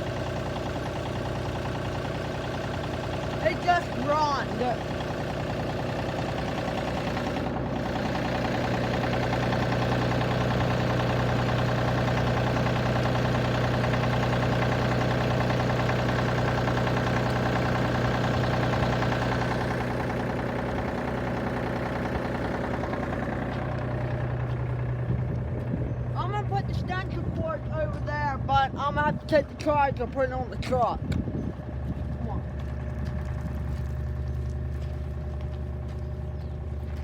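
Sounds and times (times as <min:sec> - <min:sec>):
tractor engine idling: 0:00.0 - 0:37.0.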